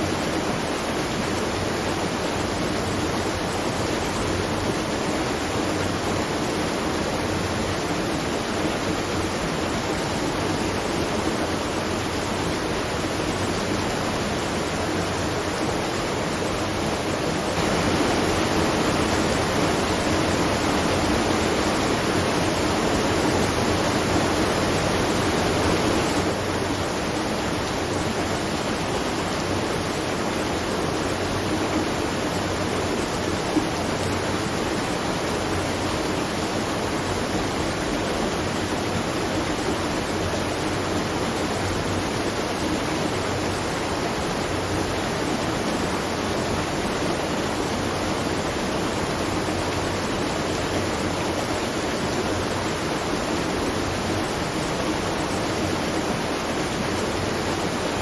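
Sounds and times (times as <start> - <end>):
water pouring at a watermill: 0.0 - 58.0.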